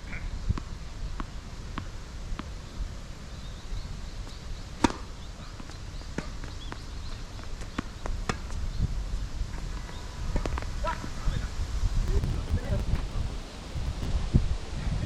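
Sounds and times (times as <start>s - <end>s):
wind buffeting microphone: 11.1s - 15.0s.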